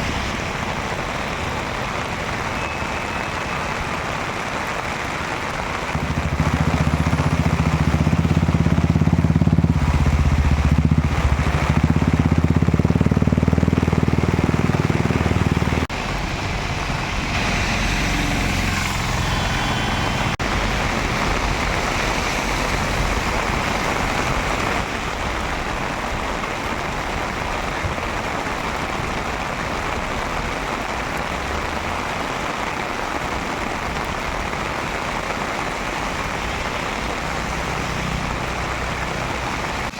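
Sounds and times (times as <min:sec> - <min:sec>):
heavy rain pouring: 0:00.0 - 0:39.9
vehicle engine running: 0:06.0 - 0:21.8.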